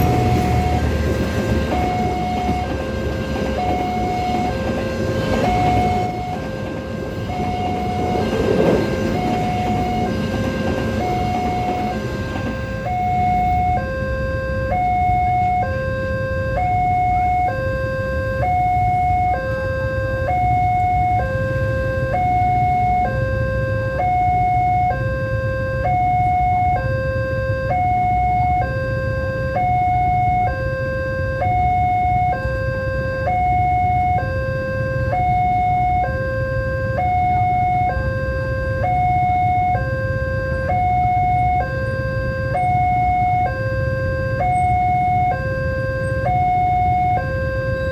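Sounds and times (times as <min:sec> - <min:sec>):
steady low rumble: 0:00.0 - 0:28.6
two-tone crossing warning alarm: 0:00.0 - 0:47.9.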